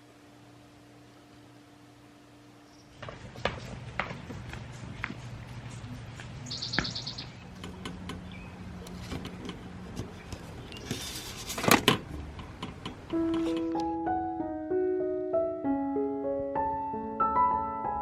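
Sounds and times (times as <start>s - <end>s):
high chirping trill: 6.4s - 7.5s
rustling clatter: 8.8s - 13.8s
small clicks and knocks: 8.8s - 13.9s.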